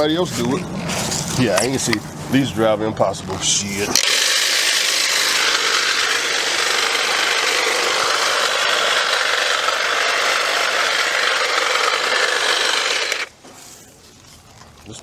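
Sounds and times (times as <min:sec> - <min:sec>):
battery saw cutting bushes: 0:03.4 - 0:13.8.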